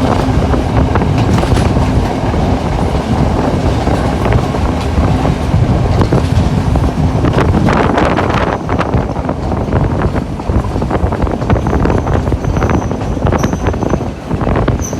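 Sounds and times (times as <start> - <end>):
train carriage rumbling and rattling: 0.0 - 14.9
wheels clicking over rails: 0.0 - 14.9
wind on microphone: 0.0 - 14.9
high wheel squeal: 11.5 - 14.0.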